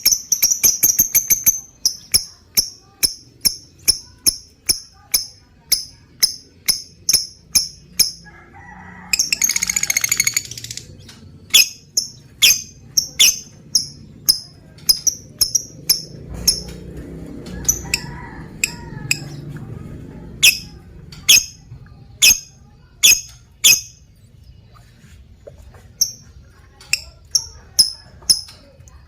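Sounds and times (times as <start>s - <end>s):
bird chirping: 0.0s - 8.2s, 9.1s - 16.8s, 20.4s - 21.6s, 22.2s - 25.0s
bird rattling chatter: 9.1s - 19.3s.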